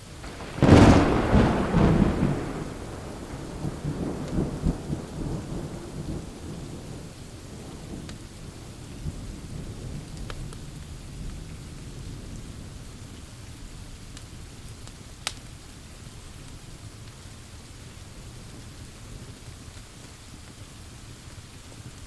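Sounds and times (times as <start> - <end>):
thunder rumbling: 0.0 - 12.8
rain pouring: 0.0 - 22.0
wood fire crackling: 0.2 - 6.3, 13.2 - 22.0.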